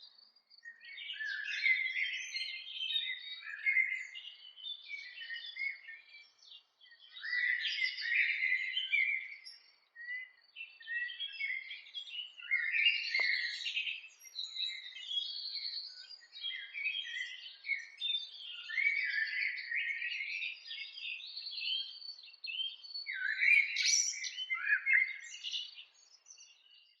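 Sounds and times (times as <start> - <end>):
birds singing and chirping: 0.0 - 27.0.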